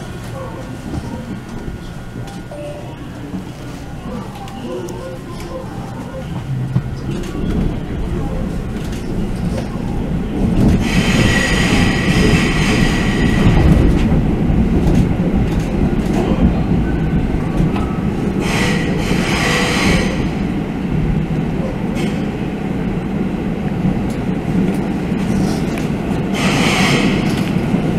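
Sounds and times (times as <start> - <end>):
electric train rumbling: 0.0 - 27.9
train wheel squeal: 10.8 - 13.6, 18.4 - 20.3, 26.4 - 27.4.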